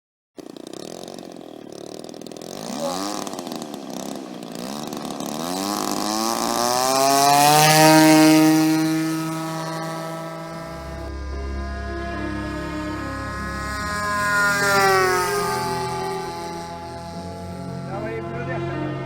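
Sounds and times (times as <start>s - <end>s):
model plane engine revving: 0.4s - 19.0s.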